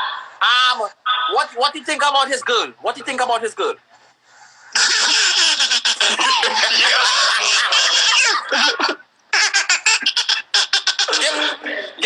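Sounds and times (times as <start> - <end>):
person laughing loudly: 4.8 - 11.5.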